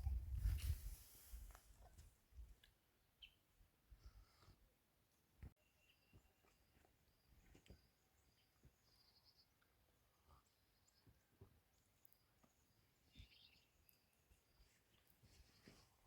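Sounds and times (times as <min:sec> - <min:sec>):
soft bird chirps: 0:03.2 - 0:03.5, 0:05.4 - 0:16.0.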